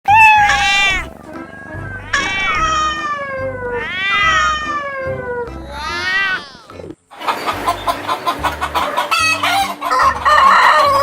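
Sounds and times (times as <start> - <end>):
cat meowing: 0.0 - 1.2, 1.8 - 6.7.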